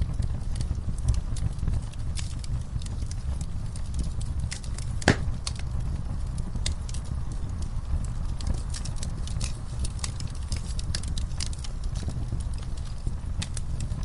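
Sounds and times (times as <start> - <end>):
low rumble of flames: 0.0 - 14.0
wood fire crackling and popping: 0.0 - 14.0.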